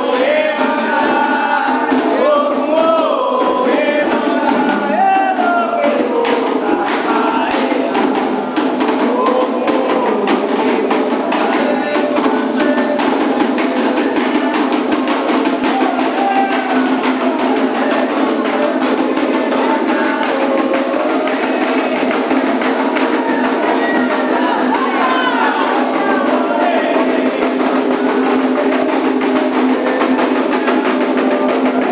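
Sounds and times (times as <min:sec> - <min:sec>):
group singing: 0:00.0 - 0:31.9
hand drums beating fast rhythm: 0:00.0 - 0:31.9.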